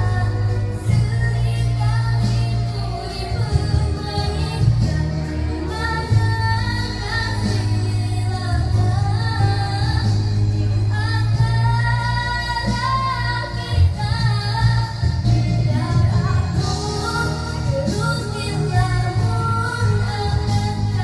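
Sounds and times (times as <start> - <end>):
backing music with heavy bass: 0.0 - 21.0
woman singing: 0.0 - 21.0.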